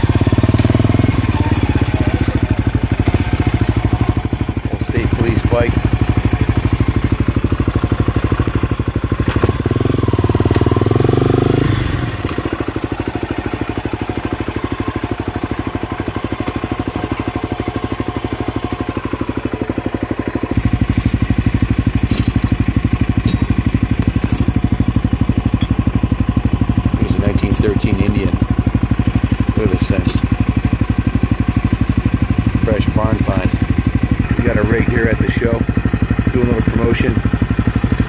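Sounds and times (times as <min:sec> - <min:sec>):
motorcycle engine running slowly: 0:00.0 - 0:38.0.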